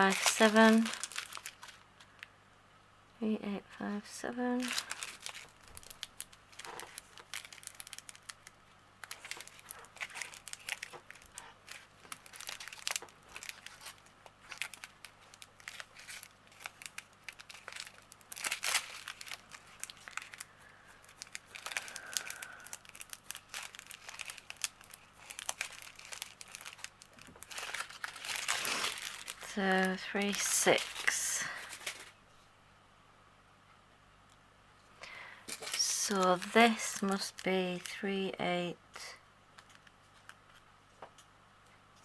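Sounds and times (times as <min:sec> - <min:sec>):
plastic bags crinkling: 0:00.0 - 0:02.3, 0:04.4 - 0:32.2, 0:35.1 - 0:38.3.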